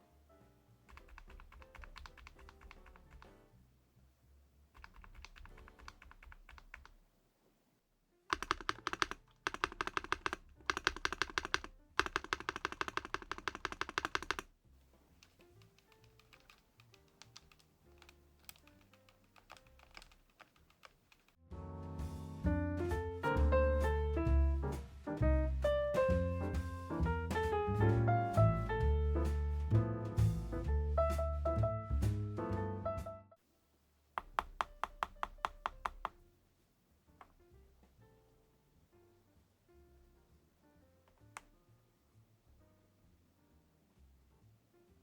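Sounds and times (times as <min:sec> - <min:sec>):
quiet background music: 0:00.0 - 0:07.0, 0:08.0 - 0:33.4, 0:34.2 - 0:45.0
mechanical keyboard typing: 0:00.9 - 0:03.4, 0:04.8 - 0:07.0, 0:08.3 - 0:14.5, 0:15.2 - 0:21.4, 0:34.2 - 0:36.2.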